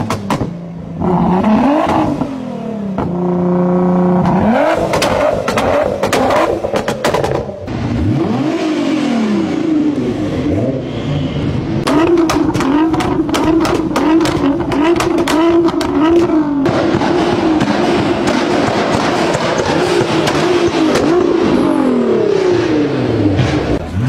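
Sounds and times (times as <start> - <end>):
car engine revving: 0.0 - 24.0
exhaust cracks: 3.0 - 8.6, 11.8 - 24.0.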